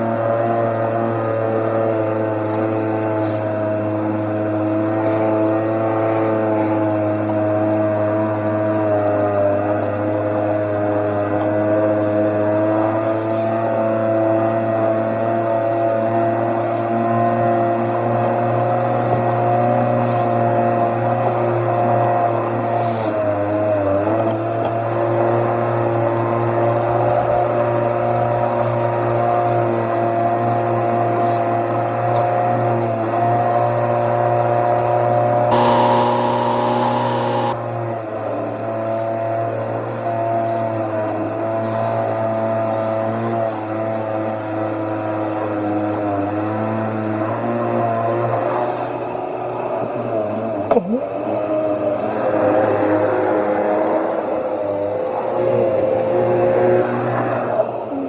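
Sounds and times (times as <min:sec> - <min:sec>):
vacuum cleaner running: 0:35.5 - 0:37.6.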